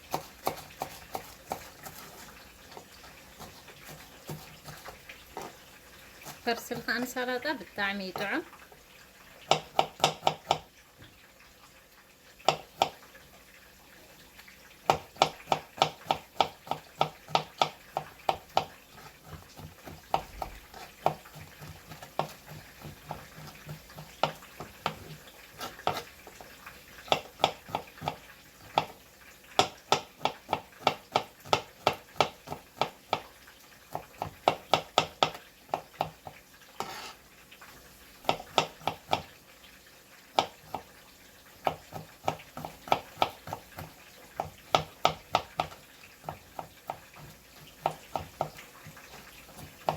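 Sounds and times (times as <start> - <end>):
utensil tapping a bowl: 9.5 - 10.7, 12.5 - 13.0.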